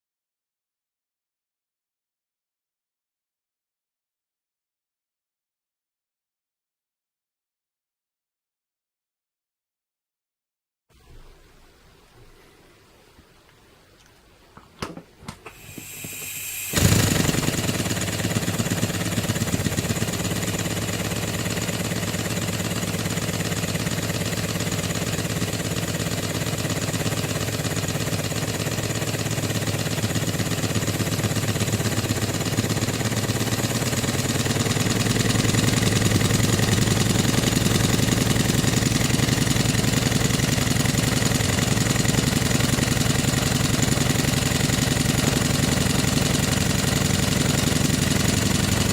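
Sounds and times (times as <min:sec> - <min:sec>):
rising steam hiss: 0:15.5 - 0:16.8
model steam engine running: 0:15.5 - 0:48.9.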